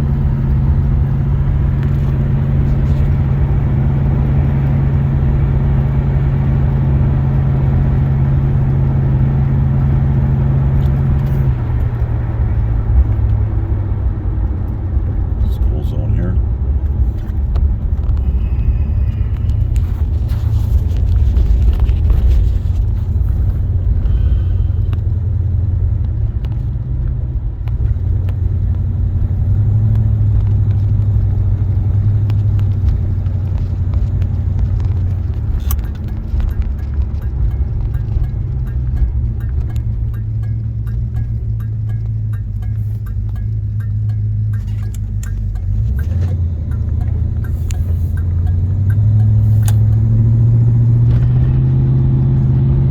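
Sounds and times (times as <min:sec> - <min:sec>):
car engine and tyres rumbling: 0:00.0 - 0:52.9
faint regular ticking: 0:32.2 - 0:50.8.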